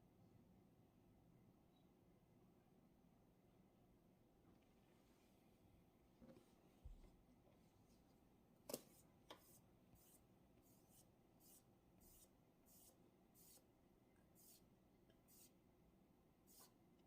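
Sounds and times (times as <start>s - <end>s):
pen scratching on paper: 8.8s - 13.6s.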